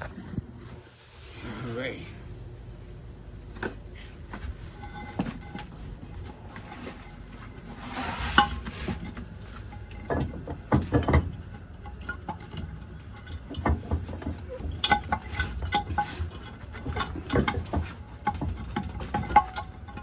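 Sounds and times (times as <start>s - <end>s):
metal tools clinking and knocking: 8.4s - 20.0s.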